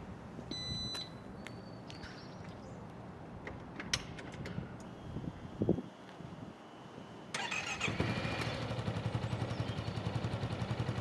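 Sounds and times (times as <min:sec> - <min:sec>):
short electronic beep: 0:00.5 - 0:01.2.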